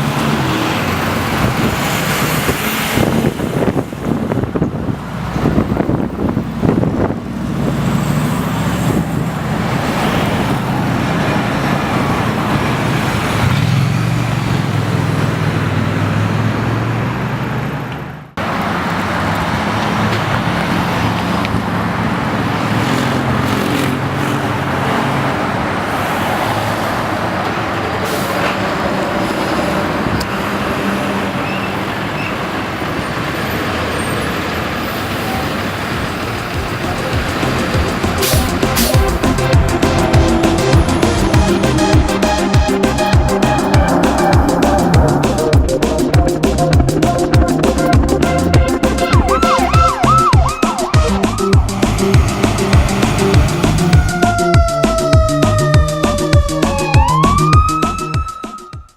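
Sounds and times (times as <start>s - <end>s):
road noise: 0.0s - 58.9s
heavy diesel engine running: 34.6s - 57.4s.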